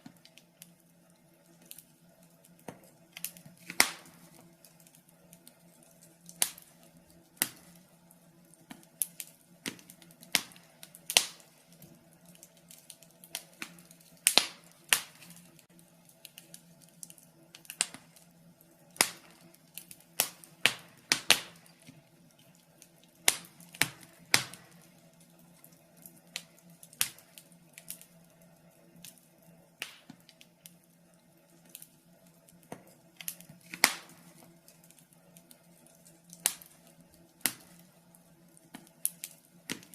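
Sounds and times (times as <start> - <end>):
faint steady hum: 0.0 - 39.9
wood fire crackling and popping: 0.0 - 39.9.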